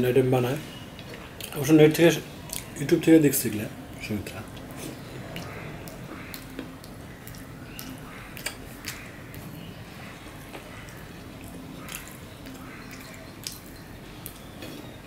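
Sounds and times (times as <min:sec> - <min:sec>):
low background hum: 0:00.0 - 0:15.0
chewing food: 0:02.4 - 0:02.8, 0:04.3 - 0:15.0
sharp wet clicks: 0:02.4 - 0:02.8, 0:04.5 - 0:15.0.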